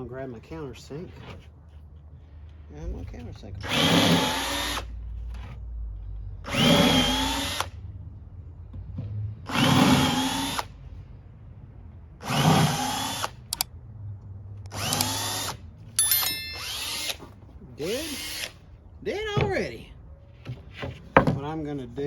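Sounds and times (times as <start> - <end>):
power drill cutting plywood: 3.6 - 4.9, 6.5 - 7.7, 9.5 - 10.7, 12.2 - 13.6, 14.7 - 15.6, 16.6 - 17.2, 17.8 - 18.6
sharp clicks: 14.7 - 17.2.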